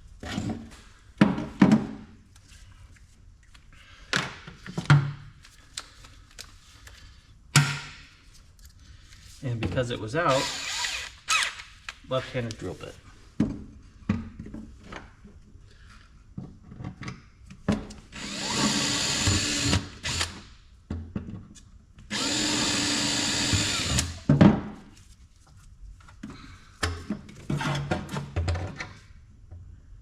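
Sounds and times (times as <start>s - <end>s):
power drill running: 10.3s - 11.5s, 18.2s - 20.4s, 22.1s - 24.2s.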